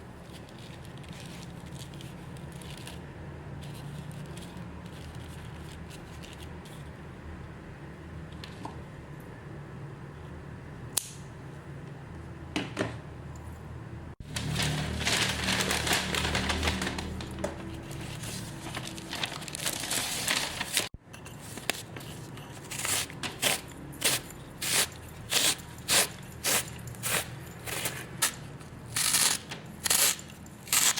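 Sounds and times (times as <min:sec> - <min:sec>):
plastic packaging crinkling: 0:14.2 - 0:21.0.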